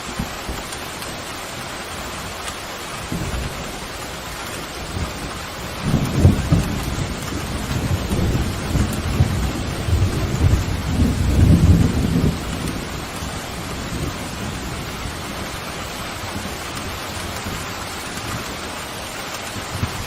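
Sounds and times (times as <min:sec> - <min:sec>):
steady rain: 0:00.0 - 0:20.0
thunder rumble: 0:03.0 - 0:18.6.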